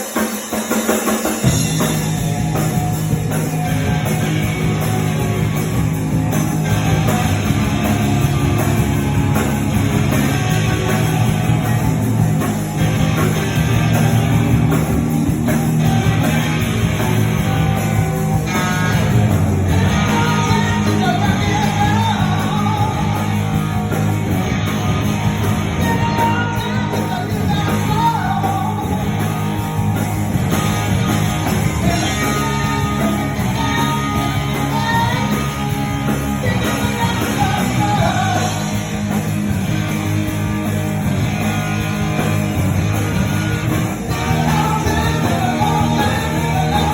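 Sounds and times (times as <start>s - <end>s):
rock band playing: 0.0s - 46.9s
man singing lead: 17.7s - 30.2s, 31.4s - 39.3s, 43.7s - 46.9s.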